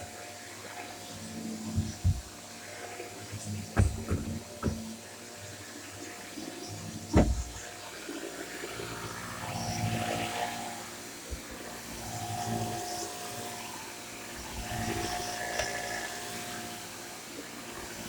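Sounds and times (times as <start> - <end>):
vacuum cleaner running: 0.0 - 18.0
sharp knock: 7.1 - 7.6.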